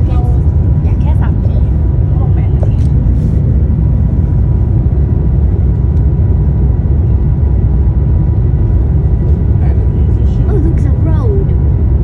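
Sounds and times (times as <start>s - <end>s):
high-speed train rumble inside: 0.0s - 12.0s.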